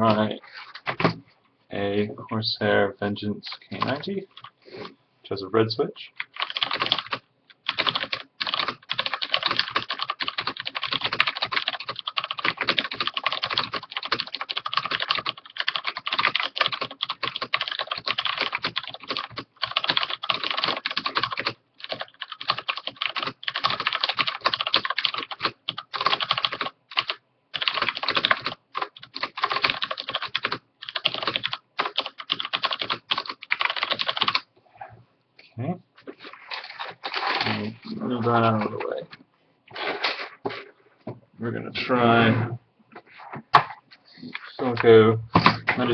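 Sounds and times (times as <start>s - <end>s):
mechanical keyboard typing: 6.2s - 34.4s.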